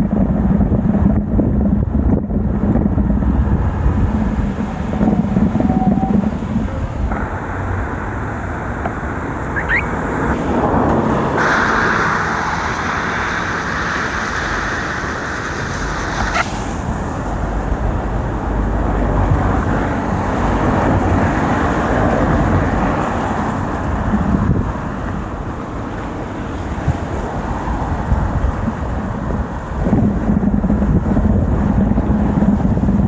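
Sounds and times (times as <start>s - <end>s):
road and traffic noise: 0.0s - 33.0s
rising squeak: 4.7s - 6.8s, 9.5s - 10.4s.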